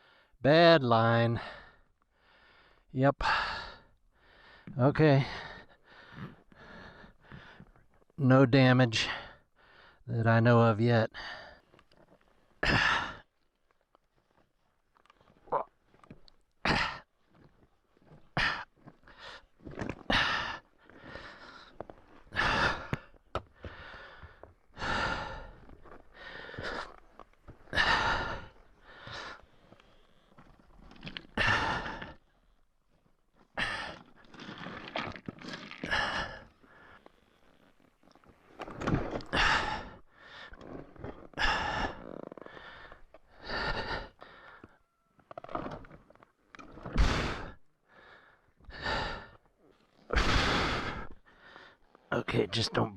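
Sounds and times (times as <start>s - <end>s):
man breathing hard: 1.4s - 7.8s, 9.2s - 10.1s, 18.3s - 30.4s, 31.4s - 32.2s, 35.8s - 37.6s, 39.3s - 40.6s, 41.3s - 44.9s, 46.9s - 49.5s, 50.1s - 51.9s.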